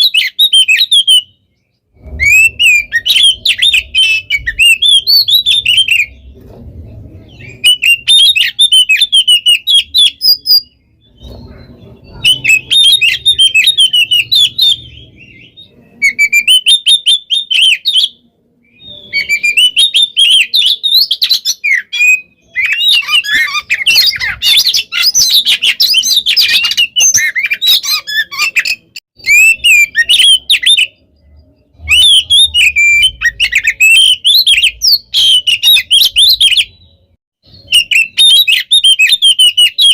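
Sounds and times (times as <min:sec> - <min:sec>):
bird singing whistles and chirps: 0:00.0 - 0:39.9.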